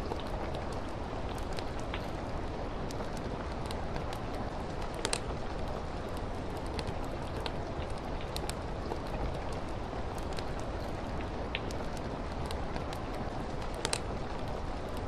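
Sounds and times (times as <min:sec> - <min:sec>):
steady rain: 0:00.0 - 0:15.0
wood fire crackling: 0:00.0 - 0:15.0.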